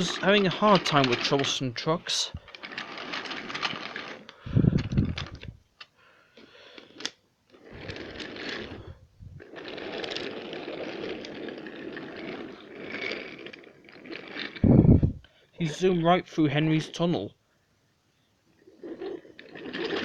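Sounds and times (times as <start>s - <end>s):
toy train rattling on wooden track: 0.0s - 5.6s, 6.6s - 14.6s, 18.7s - 20.0s.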